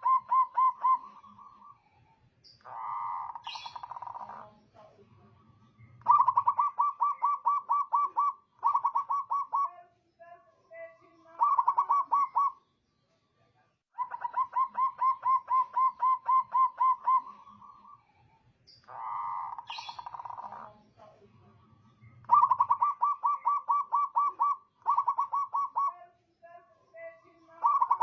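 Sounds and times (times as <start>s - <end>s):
dove cooing: 0.0s - 1.9s, 2.6s - 4.9s, 5.8s - 9.8s, 11.0s - 12.6s, 14.0s - 18.0s, 18.8s - 21.2s, 22.1s - 26.0s, 27.3s - 28.0s.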